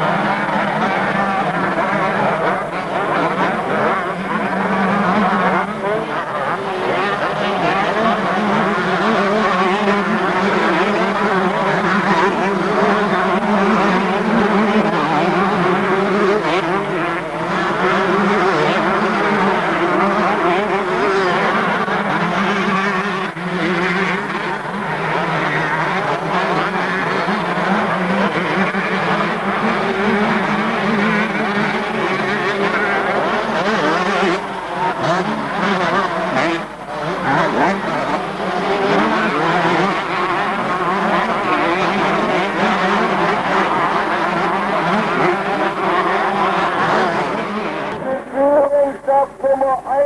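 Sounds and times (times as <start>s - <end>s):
motorcycle engines revving: 0.0s - 48.4s.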